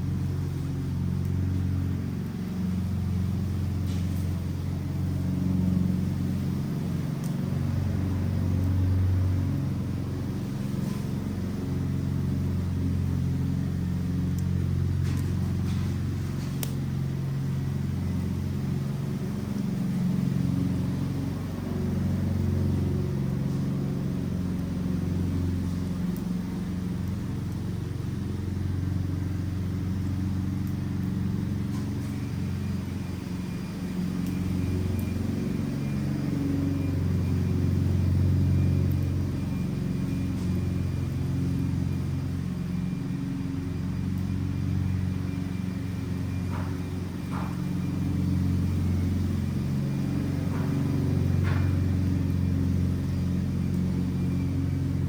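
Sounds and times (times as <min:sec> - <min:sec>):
fire flames rumbling: 0:00.0 - 0:55.0
fire crackles and pops: 0:14.2 - 0:17.0, 0:33.9 - 0:35.2.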